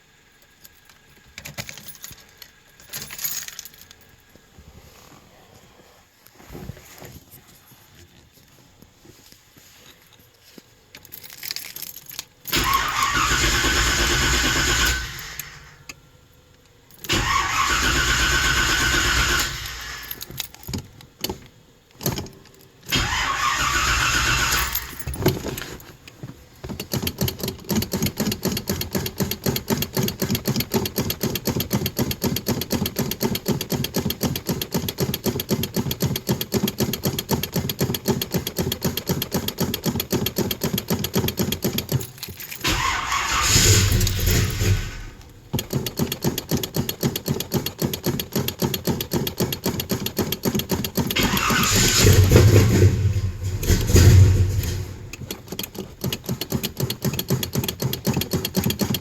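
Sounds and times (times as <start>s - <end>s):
car starter cranking engine: 12.5s - 15.9s, 16.9s - 20.7s, 22.9s - 25.8s, 26.8s - 59.0s.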